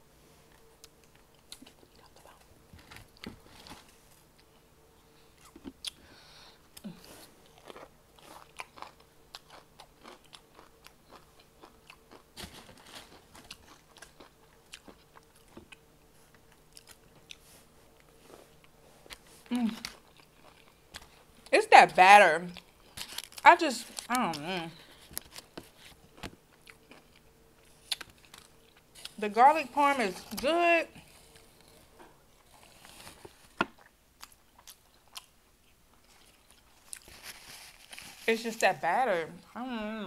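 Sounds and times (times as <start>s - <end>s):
crunching fried chicken: 7.4s - 17.4s, 22.5s - 29.2s, 32.6s - 38.3s.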